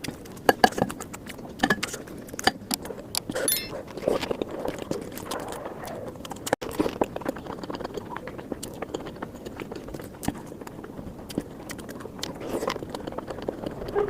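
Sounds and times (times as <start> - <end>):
person chewing wetly: 11.2 - 13.7.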